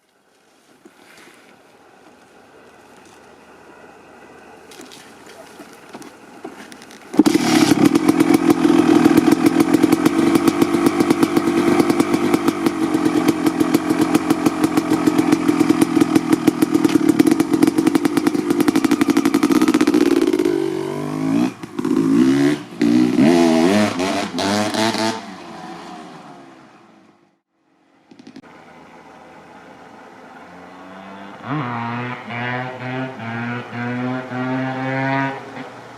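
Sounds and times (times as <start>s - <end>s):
two-stroke motorcycle engine running: 7.1s - 25.2s.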